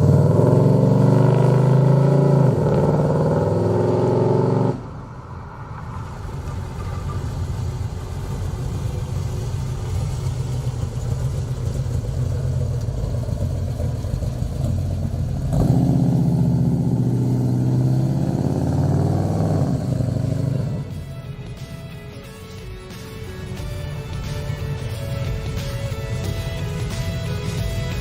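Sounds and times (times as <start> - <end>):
car engine deep rumble revving: 0.0 - 21.8.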